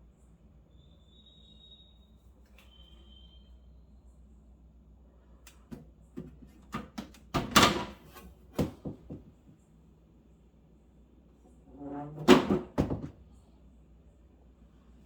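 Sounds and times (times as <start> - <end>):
refrigerator door clicks and knocks: 6.2 - 8.0, 11.8 - 13.2.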